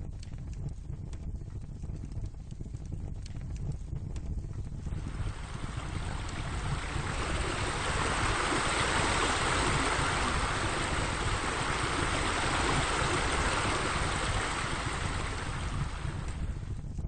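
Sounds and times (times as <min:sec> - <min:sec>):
wind rumble on microphone: 0:00.0 - 0:17.0
rushing splashing water: 0:04.9 - 0:16.6.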